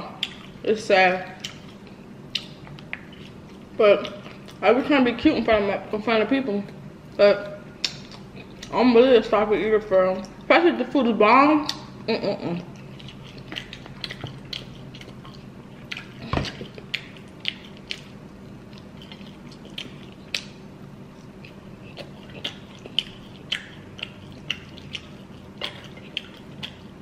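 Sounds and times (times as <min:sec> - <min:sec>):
chewing with wet mouth clicks: 0:00.2 - 0:00.6, 0:01.4 - 0:04.6, 0:07.8 - 0:08.8, 0:11.6 - 0:11.9, 0:12.6 - 0:27.0.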